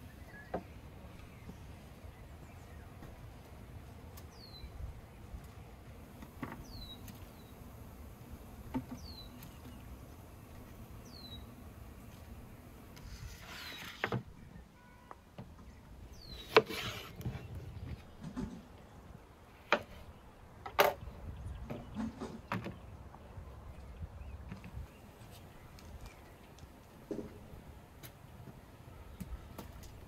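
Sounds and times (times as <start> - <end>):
bird chirping: 0.0 - 3.1, 4.2 - 5.7, 6.5 - 7.6, 8.9 - 10.2, 11.0 - 11.6, 13.6 - 26.6.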